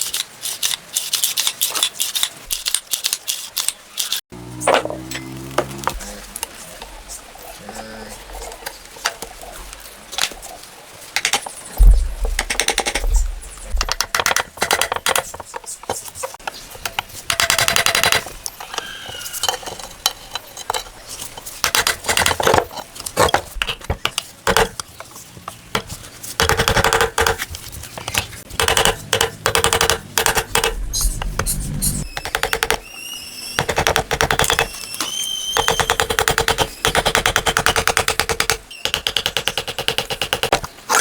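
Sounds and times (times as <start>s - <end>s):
rapid ratchet clicking: 17.3s - 18.3s, 28.5s - 30.8s, 35.6s - 40.6s.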